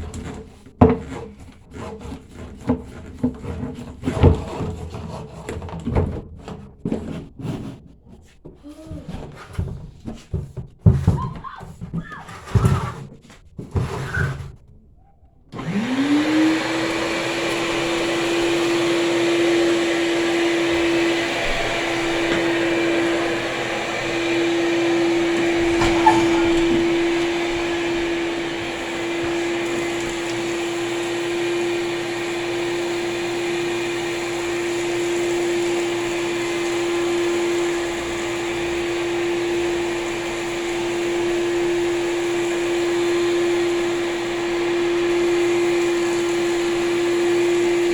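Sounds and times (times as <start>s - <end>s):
vacuum cleaner motor whine: 15.5s - 47.9s
knocks: 24.4s - 30.1s.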